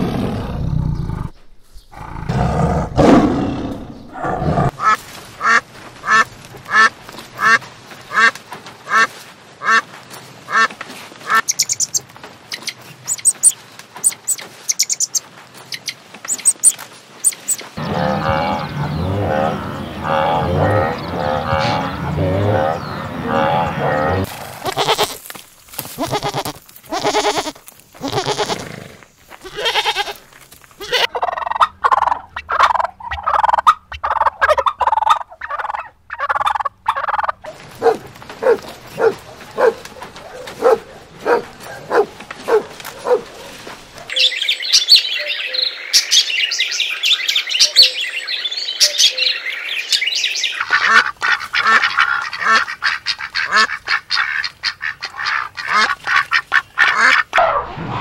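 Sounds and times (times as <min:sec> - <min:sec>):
waterfowl honking and quacking: 0:04.8 - 0:09.9, 0:10.5 - 0:12.0, 0:50.4 - 0:57.4.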